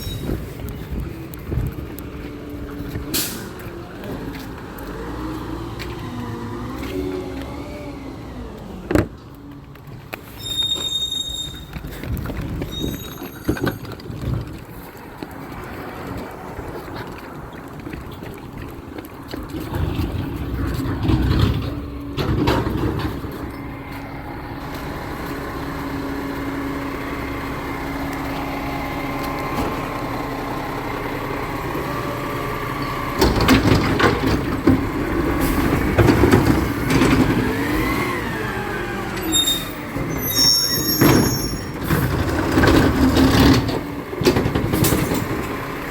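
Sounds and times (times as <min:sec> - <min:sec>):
truck engine hum: 0:00.0 - 0:45.9
truck whine: 0:00.0 - 0:45.9
knocks and clanks: 0:16.7 - 0:23.6, 0:33.2 - 0:37.8, 0:41.0 - 0:45.6.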